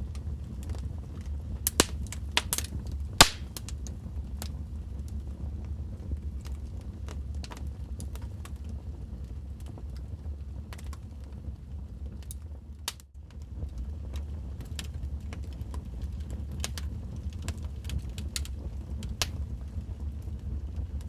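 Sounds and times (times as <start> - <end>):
low fire rumble: 0.0 - 21.0
wood fire crackling and popping: 0.0 - 21.0.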